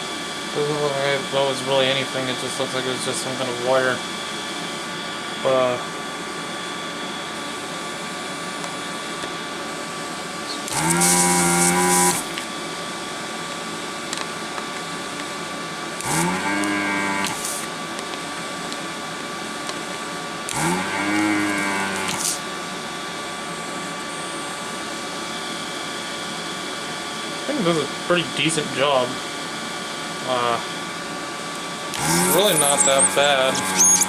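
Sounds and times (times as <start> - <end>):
vacuum pump motor buzz: 0.0 - 18.0, 20.4 - 24.1, 31.6 - 34.0
hiss of air suction: 10.8 - 12.4, 32.0 - 34.0.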